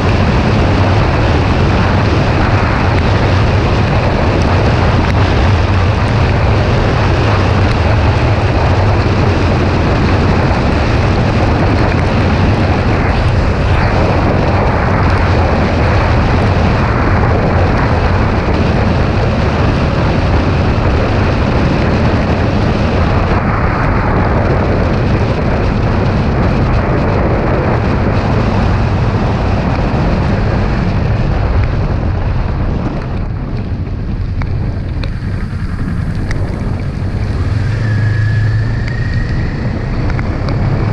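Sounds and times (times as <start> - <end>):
wind rush over microphone: 0.0 - 40.9
motorcycle engine cruising: 32.5 - 40.9.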